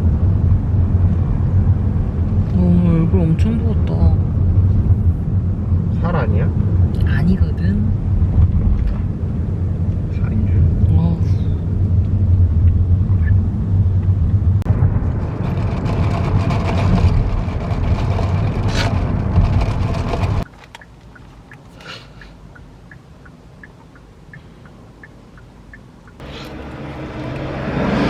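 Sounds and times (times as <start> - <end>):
road and engine noise in car: 0.0 - 28.0
faint regular ticking: 20.4 - 26.2.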